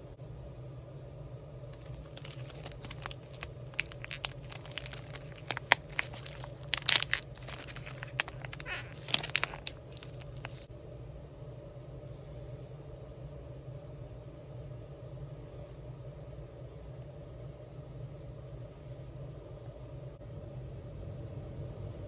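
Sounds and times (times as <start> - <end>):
squeezed toy crackling: 1.8 - 10.7.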